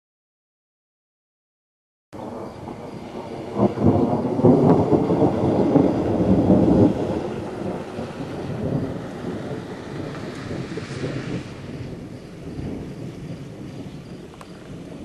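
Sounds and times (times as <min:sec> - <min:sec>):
thunder rumbling: 0:02.2 - 0:15.0.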